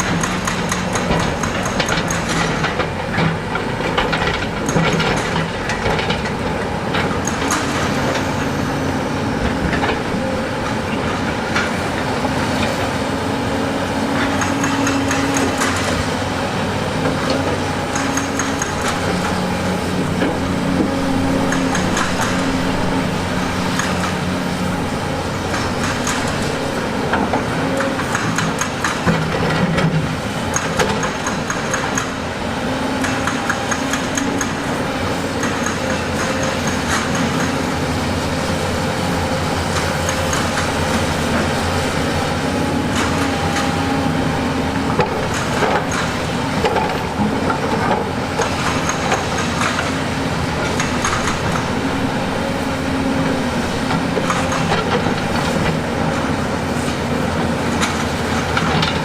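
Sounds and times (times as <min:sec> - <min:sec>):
heavy diesel machinery running: 0:00.0 - 0:59.0
metal tracks clanking on rock: 0:14.2 - 0:32.3, 0:33.0 - 0:59.0.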